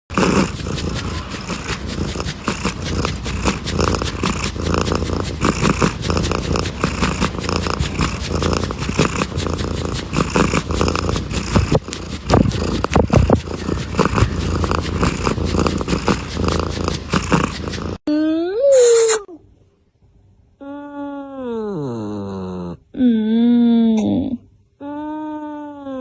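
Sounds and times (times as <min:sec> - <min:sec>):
cat purring: 0:00.1 - 0:18.0.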